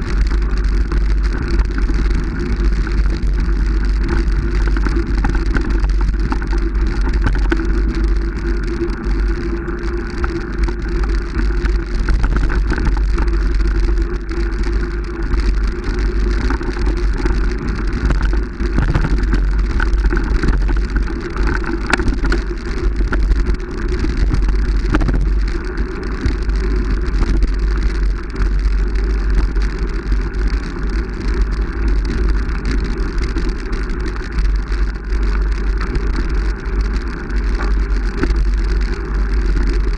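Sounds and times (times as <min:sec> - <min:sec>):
crackles: 0:00.0 - 0:39.9
wind rumble on microphone: 0:00.0 - 0:39.9.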